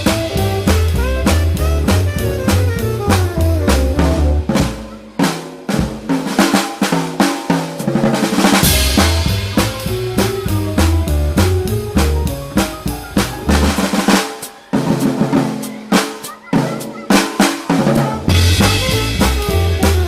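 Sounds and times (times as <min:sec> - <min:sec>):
low bass notes: 0:00.0 - 0:04.7, 0:08.6 - 0:14.0, 0:18.3 - 0:20.0
drum kit snare and cymbals: 0:00.0 - 0:20.0
jazz combo playing: 0:00.0 - 0:20.0.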